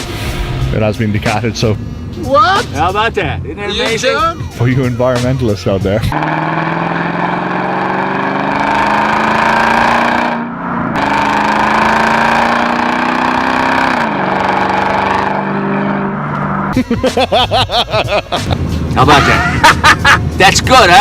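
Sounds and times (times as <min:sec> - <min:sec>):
car engine accelerating hard: 0:06.0 - 0:16.8.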